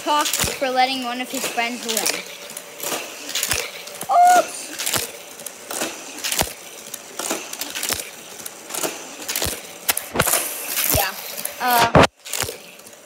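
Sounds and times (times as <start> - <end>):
short voiced hum: 4.0 - 4.8, 11.6 - 12.1.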